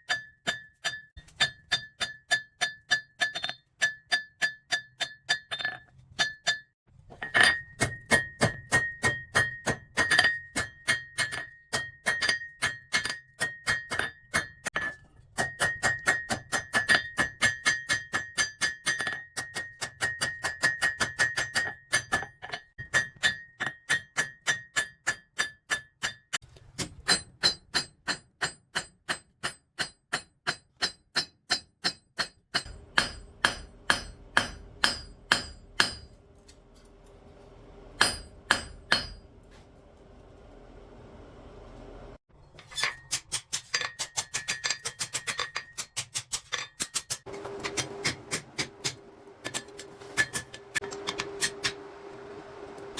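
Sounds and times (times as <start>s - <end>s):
hammer striking steel on anvil: 0.0s - 26.2s, 26.8s - 41.0s, 42.6s - 51.9s
faint steady hum: 32.7s - 42.2s.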